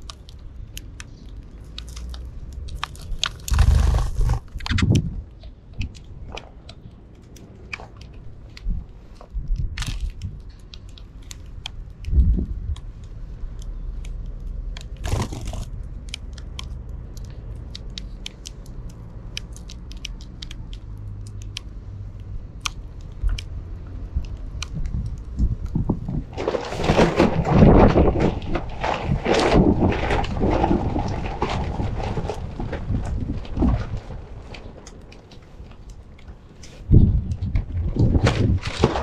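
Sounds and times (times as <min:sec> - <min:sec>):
birds cracking seed: 0:00.0 - 0:05.0.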